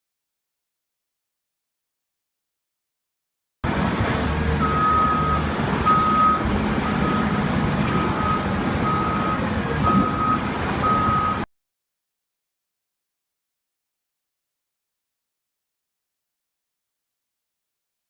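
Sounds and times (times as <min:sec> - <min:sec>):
low motor rumble: 0:03.6 - 0:11.4
reversing alarm beeping: 0:04.6 - 0:11.5.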